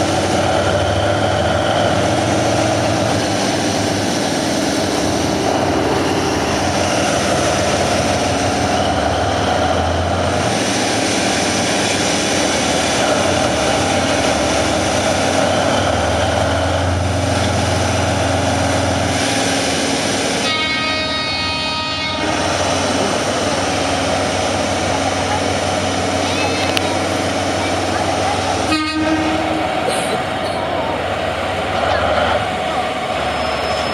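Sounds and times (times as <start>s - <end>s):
locomotive engine running under load: 0.0s - 33.9s.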